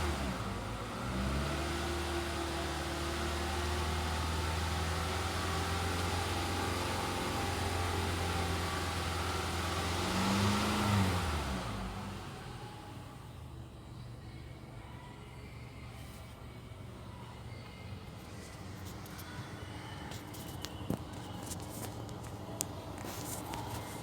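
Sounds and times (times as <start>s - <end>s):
car engine blipped: 0.0s - 14.5s
car engine idling: 0.0s - 24.0s.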